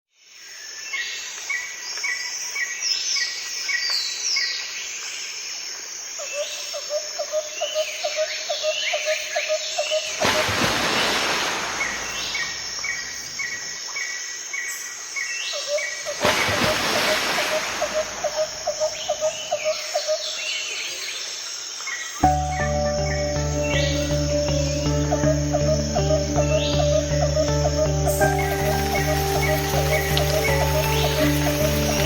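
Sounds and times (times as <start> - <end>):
birds chirping and whistling: 22.2 - 32.0
fast pulsing bird trill: 22.3 - 32.0.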